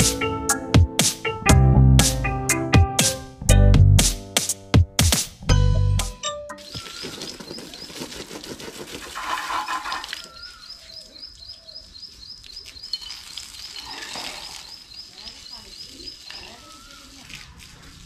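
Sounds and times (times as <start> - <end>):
bird chirping high: 10.0 - 17.2.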